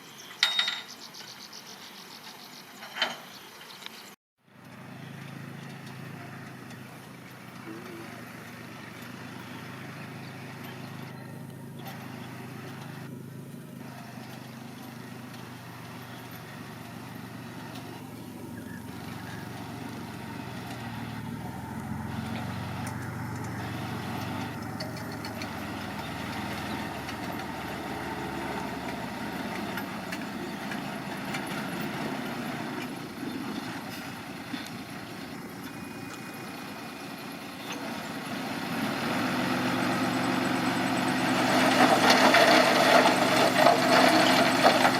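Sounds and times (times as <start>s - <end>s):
heavy machinery diesel engine: 4.4s - 44.9s.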